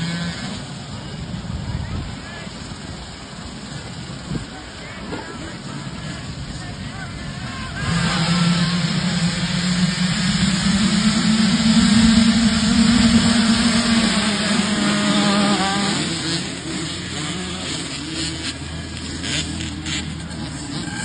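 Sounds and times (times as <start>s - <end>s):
dirt bike engine running: 3.0s - 21.0s.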